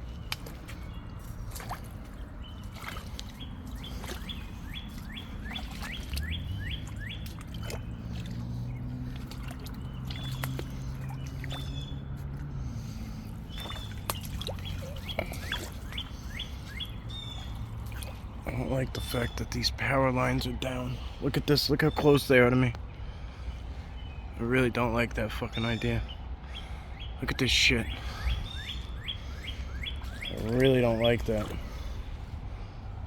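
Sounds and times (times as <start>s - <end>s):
snaps and clicks underfoot: 0.2s - 4.3s
songbird whistling: 3.4s - 7.3s, 13.5s - 17.6s, 27.9s - 31.7s.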